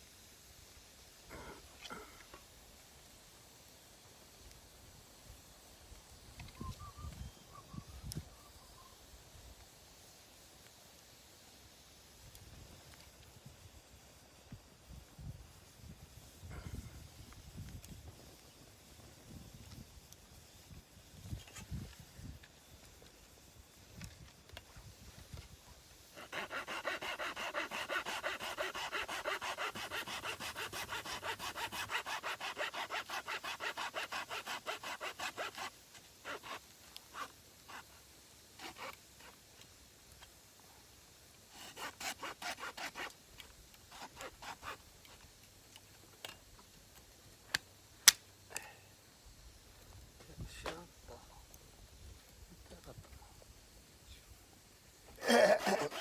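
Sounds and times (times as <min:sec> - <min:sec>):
hand saw cutting wood: 0:26.2 - 0:38.0, 0:38.6 - 0:39.3, 0:41.5 - 0:43.2, 0:43.8 - 0:45.2, 0:55.2 - 0:56.0.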